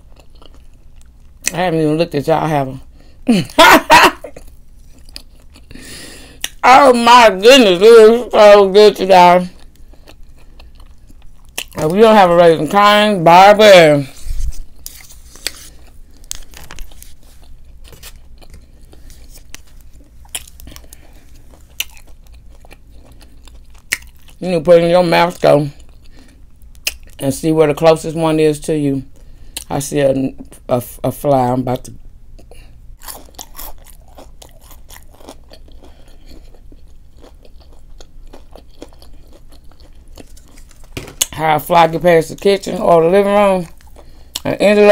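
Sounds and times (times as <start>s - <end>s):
person chewing crunchy food: 0.0s - 1.6s, 4.3s - 6.6s, 9.3s - 12.2s, 14.1s - 24.4s, 25.7s - 27.2s, 32.3s - 41.4s, 42.4s - 44.6s.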